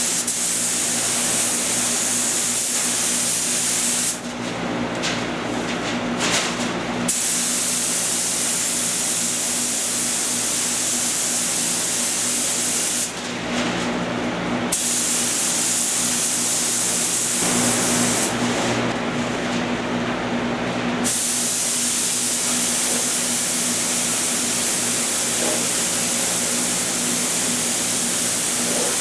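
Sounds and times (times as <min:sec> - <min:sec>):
paint spray gun hissing: 0:14.8 - 0:18.3, 0:21.1 - 0:29.0.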